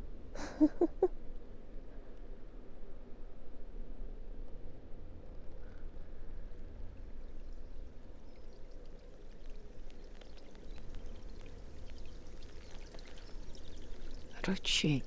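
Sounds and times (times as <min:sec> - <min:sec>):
water dripping: 0:06.8 - 0:15.0
water trickling and splashing: 0:06.8 - 0:15.0.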